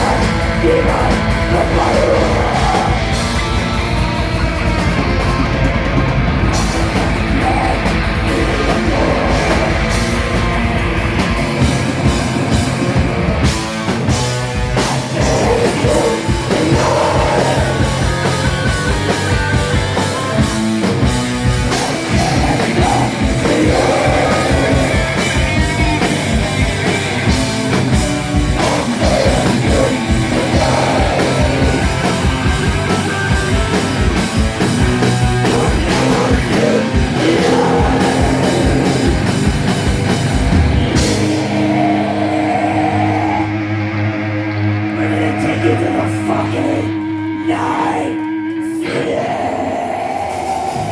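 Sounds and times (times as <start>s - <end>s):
person singing: 0.0s - 3.6s, 6.8s - 10.2s, 14.8s - 19.6s, 21.7s - 26.0s, 28.6s - 32.5s, 35.3s - 39.5s, 40.9s - 44.2s, 44.9s - 50.9s
bass guitar: 0.0s - 50.9s
distorted electric guitars: 0.0s - 50.9s
drums: 0.0s - 50.9s.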